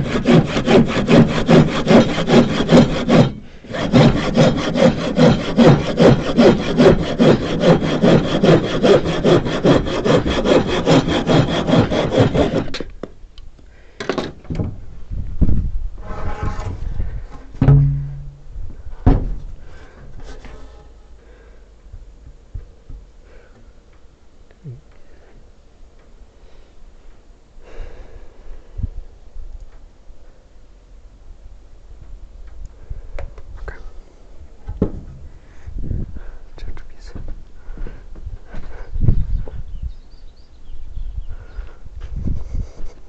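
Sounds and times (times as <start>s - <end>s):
handsaw cutting wood: 0.0s - 12.9s
scattered knocks: 17.6s - 18.4s.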